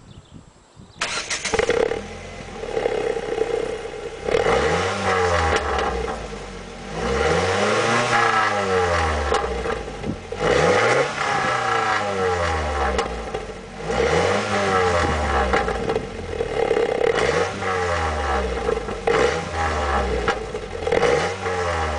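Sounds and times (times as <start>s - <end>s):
car engine revving: 1.0s - 21.9s
car engine idling: 1.1s - 4.4s.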